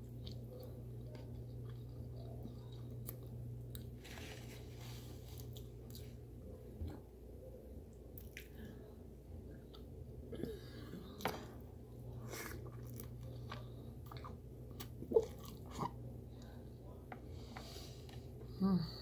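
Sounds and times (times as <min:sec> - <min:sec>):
person chewing with wet smacks: 0:00.0 - 0:04.0, 0:05.3 - 0:06.2, 0:07.9 - 0:17.2.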